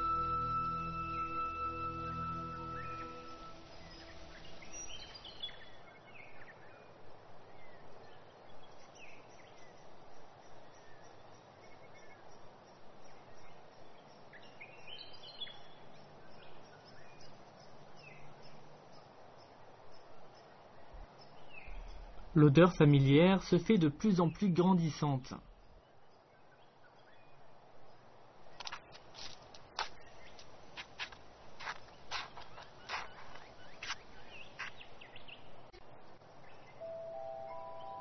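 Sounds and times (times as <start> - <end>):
birds chirping: 0.0 - 6.8, 13.0 - 29.0, 31.6 - 38.0
soft steady hiss: 0.0 - 38.0.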